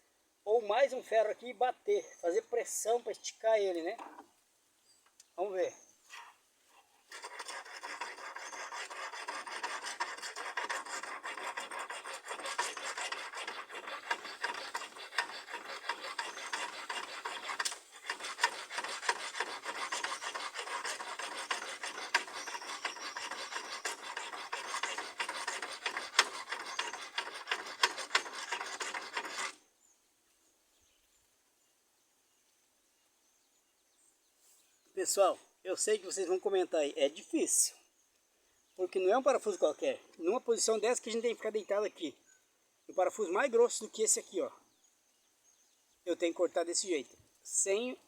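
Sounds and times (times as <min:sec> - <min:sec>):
hacksaw blade rasping through bolt: 0:07.2 - 0:29.5.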